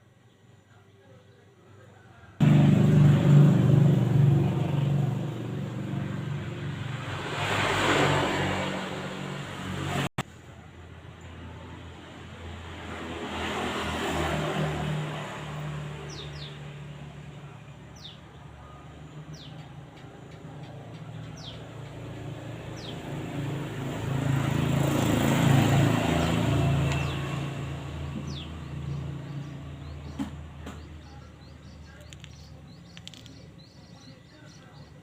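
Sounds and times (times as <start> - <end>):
vehicles passing on road: 1.6 - 35.0
bird chirping: 26.2 - 35.0.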